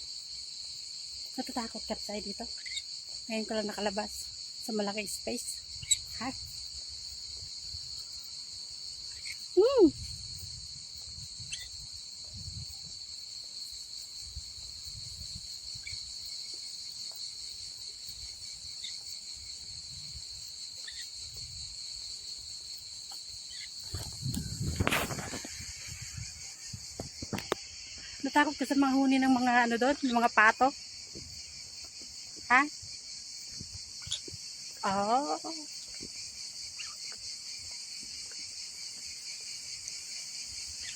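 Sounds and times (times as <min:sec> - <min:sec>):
insects chorus: 0:00.0 - 0:40.9
brief rustle: 0:23.8 - 0:26.1.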